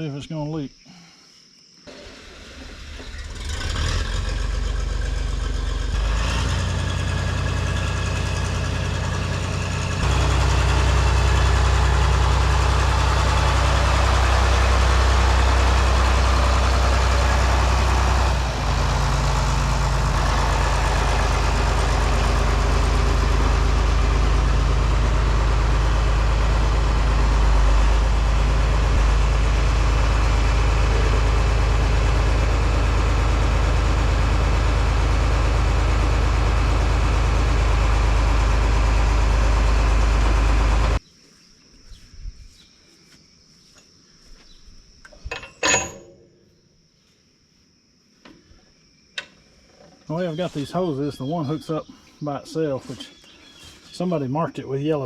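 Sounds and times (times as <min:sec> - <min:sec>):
tractor engine running: 0:01.9 - 0:41.0, 0:49.2 - 0:51.8.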